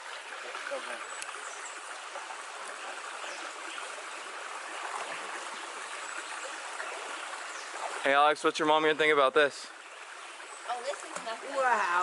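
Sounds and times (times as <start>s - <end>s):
water running over rocks: 0.0s - 12.0s.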